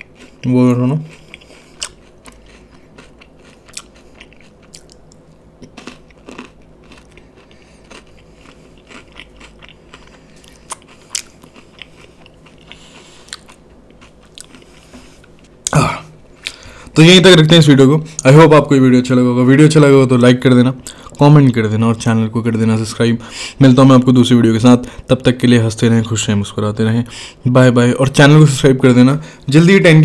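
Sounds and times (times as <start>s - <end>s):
person chewing crunchy sweet: 0.0s - 16.8s.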